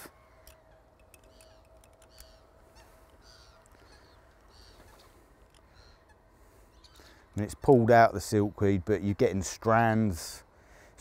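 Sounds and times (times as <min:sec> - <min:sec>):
distant bird calls: 0:00.0 - 0:08.8
light clicks: 0:00.4 - 0:05.7.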